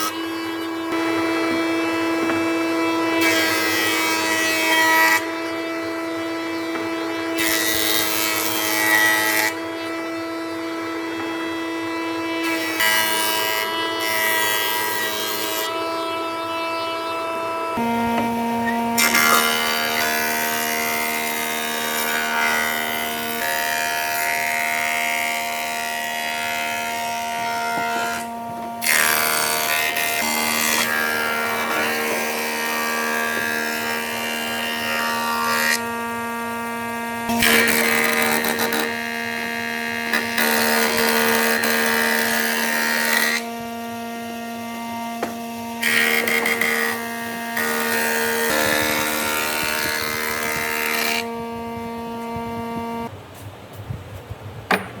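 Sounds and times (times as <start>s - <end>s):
power tool motor hum: 0.0s - 53.1s
wood cutting or sanding noise: 0.0s - 53.1s.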